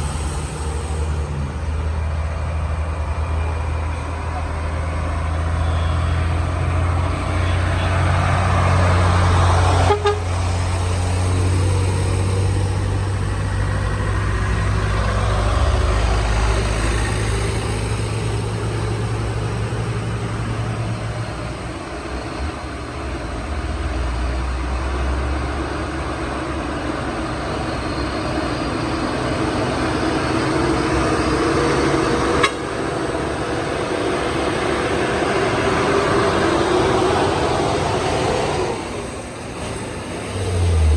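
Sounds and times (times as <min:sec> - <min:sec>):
truck diesel engines droning: 0:00.0 - 0:40.9
vehicle horns: 0:07.3 - 0:10.8, 0:30.2 - 0:36.8.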